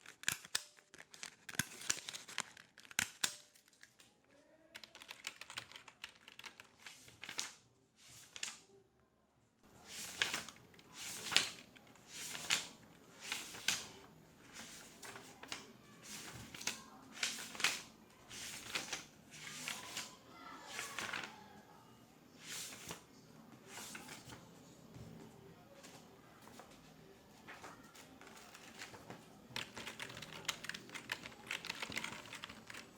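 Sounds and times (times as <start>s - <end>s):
paper rustling and crinkling: 0.0s - 4.2s, 4.8s - 8.6s, 9.8s - 21.6s, 22.4s - 32.9s
keyboard clicks: 4.8s - 6.7s, 29.5s - 32.9s.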